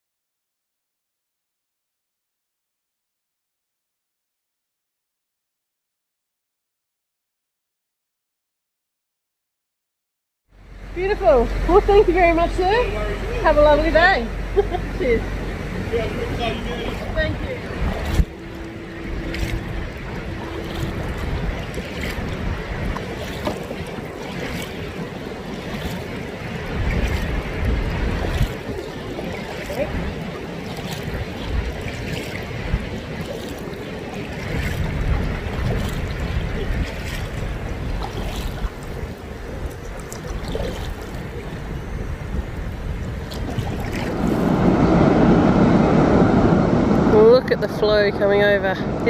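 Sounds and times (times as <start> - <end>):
water lapping around canoe: 10.6 - 45.0
paddle splashes: 10.6 - 45.3
wind buffeting microphone: 10.6 - 49.0.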